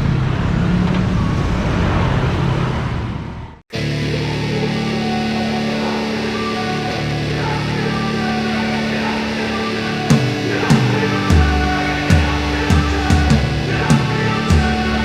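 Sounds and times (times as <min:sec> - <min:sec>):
electric guitar chords: 0:03.7 - 0:15.0
rock drum beat: 0:10.1 - 0:15.0.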